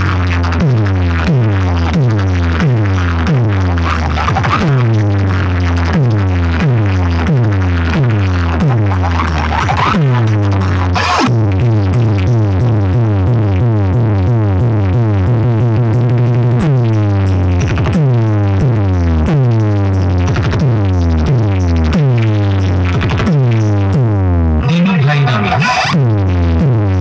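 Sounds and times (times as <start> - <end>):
loud electronic dance music: 2.5 - 12.4, 24.6 - 26.6.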